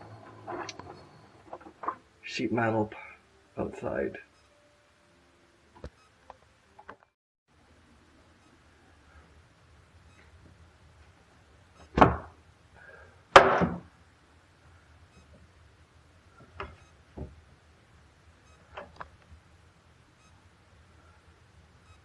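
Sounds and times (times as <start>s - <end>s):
knocks and clunks: 11.9s - 12.4s, 13.4s - 13.9s.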